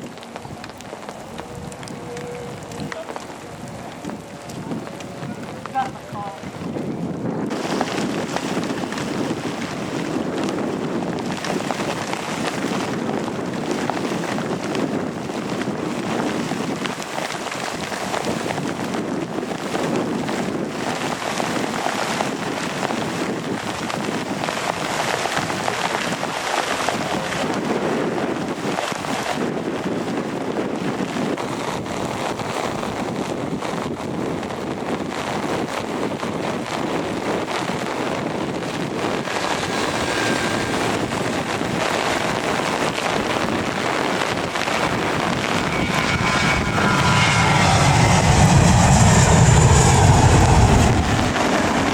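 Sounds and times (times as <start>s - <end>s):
jet engines roaring: 0.0s - 17.1s, 37.0s - 51.9s
heavy rain falling: 0.0s - 18.9s, 35.0s - 46.5s.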